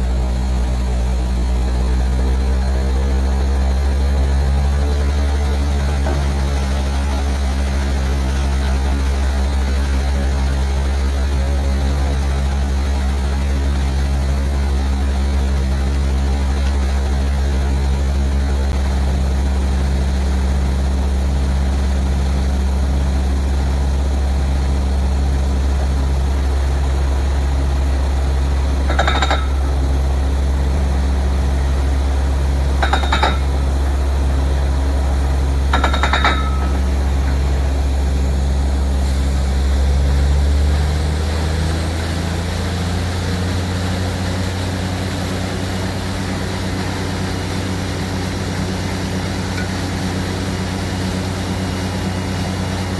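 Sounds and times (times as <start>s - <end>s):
drilling rig engine droning: 0.0s - 52.9s
short ringing knocks: 28.9s - 29.9s, 32.8s - 33.9s, 35.7s - 37.4s.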